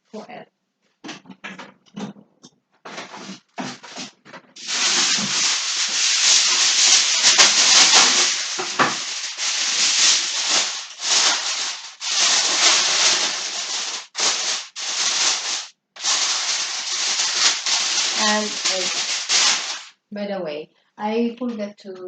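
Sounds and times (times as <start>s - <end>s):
aluminium foil crinkling: 2.9s - 19.9s.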